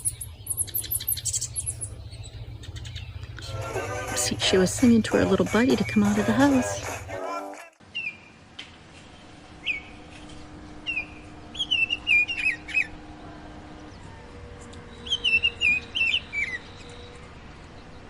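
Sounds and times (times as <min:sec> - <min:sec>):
songbird whistling: 0:00.0 - 0:03.5, 0:07.9 - 0:08.4, 0:10.8 - 0:13.0, 0:14.9 - 0:17.2.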